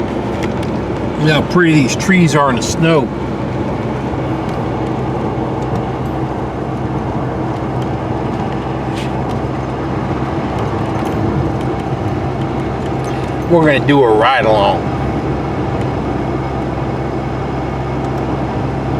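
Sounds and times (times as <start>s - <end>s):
truck engine hum: 0.0s - 18.9s
tyre and road noise: 0.0s - 18.9s.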